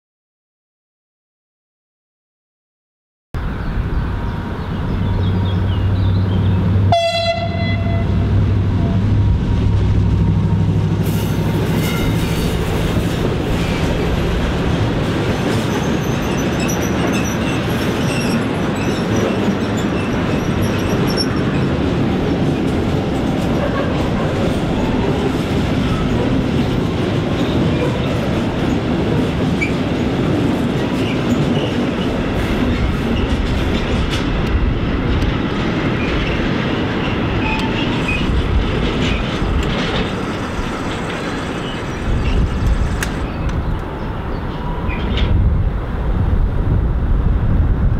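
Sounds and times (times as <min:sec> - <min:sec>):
freight train rolling past: 0:03.4 - 0:47.9
short horn tone: 0:06.9 - 0:08.3
wheels clattering over rail joints: 0:10.6 - 0:43.8
high wheel squeal: 0:11.1 - 0:12.7, 0:15.3 - 0:21.7, 0:37.4 - 0:38.4.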